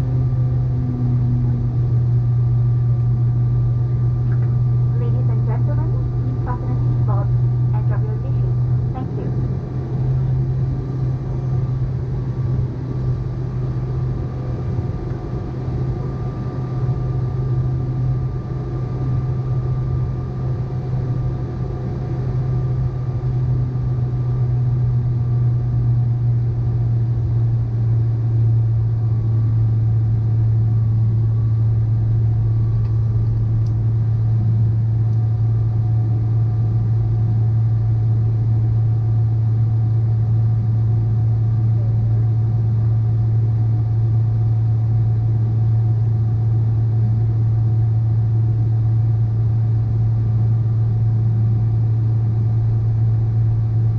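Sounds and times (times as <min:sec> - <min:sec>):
faint whining tones: 0:00.0 - 0:26.3
jet engines humming: 0:00.0 - 0:38.8.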